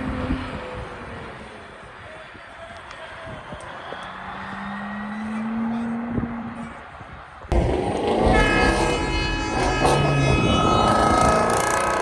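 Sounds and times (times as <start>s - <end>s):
loud vehicle noise: 0.0s - 12.0s
air horn chord: 8.0s - 12.0s.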